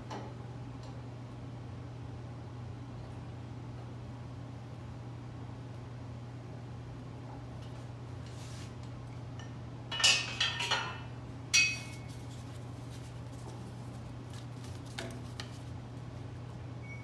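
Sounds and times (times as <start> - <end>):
sharp ringing metal clink: 11.6 - 12.0.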